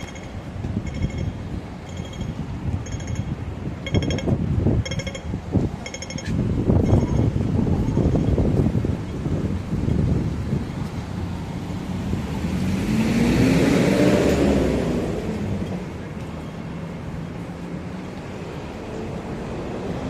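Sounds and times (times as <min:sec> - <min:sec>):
background traffic rumble: 0:00.0 - 0:20.0
vehicle driving past: 0:11.2 - 0:16.0.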